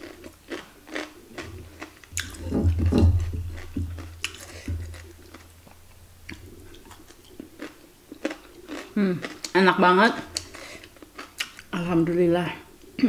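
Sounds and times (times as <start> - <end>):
chewing crunchy cucumber: 0.0 - 9.6, 10.2 - 11.7
wet mouth clicks: 1.1 - 2.5
low hum: 1.4 - 7.6.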